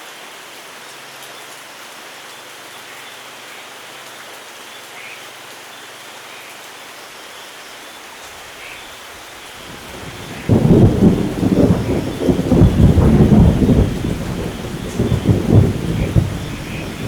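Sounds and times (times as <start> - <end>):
steady rain: 0.0 - 17.0
thunder rumbling: 9.6 - 17.0.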